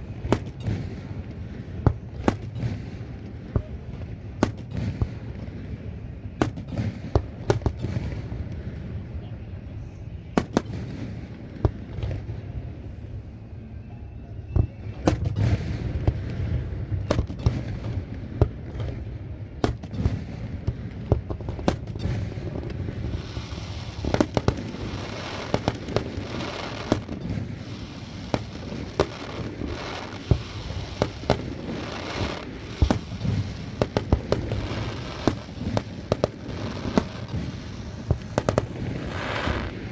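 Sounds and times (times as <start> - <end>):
fireworks bursting with bangs: 0.0 - 9.6, 10.2 - 12.9, 14.5 - 39.9
fireworks crackling hiss: 15.0 - 39.9.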